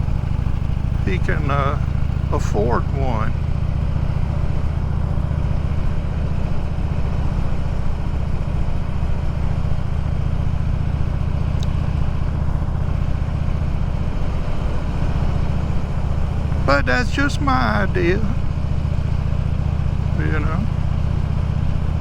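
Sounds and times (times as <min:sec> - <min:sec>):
motorcycle engine droning: 0:00.0 - 0:22.0
wind and road noise: 0:00.0 - 0:22.0.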